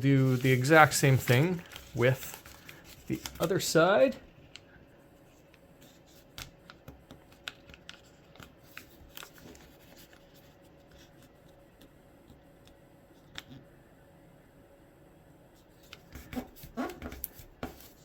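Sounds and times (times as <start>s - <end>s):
paper crinkling and folding: 0.0s - 11.6s
faint steady hum: 0.0s - 18.0s.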